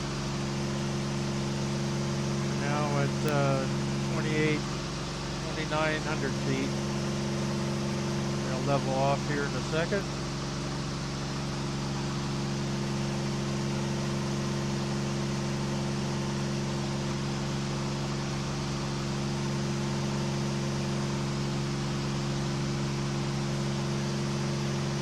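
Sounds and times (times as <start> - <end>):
airplane engine and propeller droning: 1.7 - 14.7.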